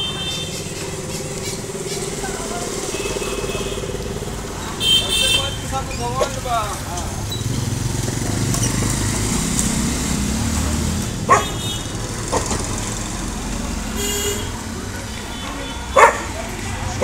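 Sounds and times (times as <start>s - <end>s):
vehicle engine running: 0.0s - 17.0s
dog barking: 11.2s - 11.6s, 15.9s - 16.5s.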